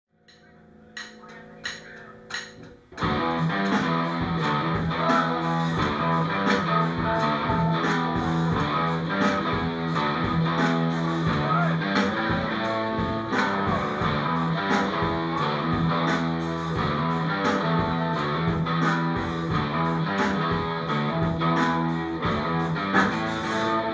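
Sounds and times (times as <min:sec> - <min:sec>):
distorted electric guitar: 0:00.2 - 0:23.9
bass guitar: 0:00.3 - 0:23.9
drums: 0:00.3 - 0:23.9.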